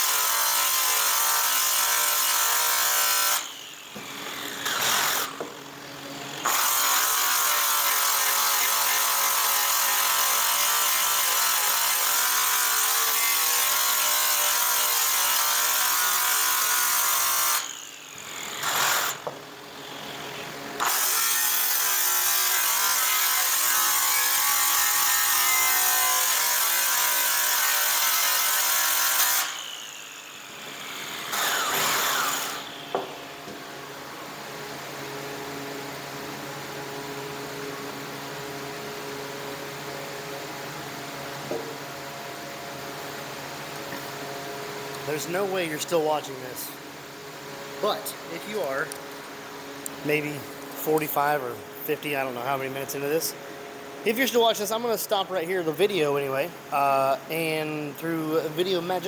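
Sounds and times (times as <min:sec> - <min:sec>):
electric buffing tool motor: 0:00.0 - 0:33.6.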